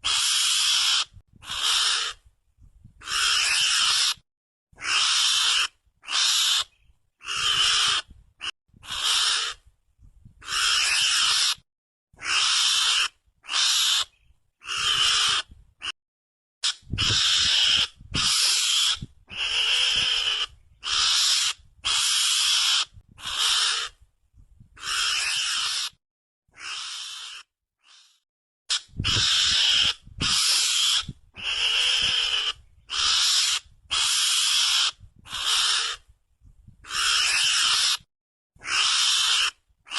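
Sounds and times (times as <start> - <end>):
mongoose lure call hissing chatter: 16.6 - 23.9, 24.8 - 25.9, 26.6 - 36.0, 36.9 - 38.0, 38.6 - 39.6.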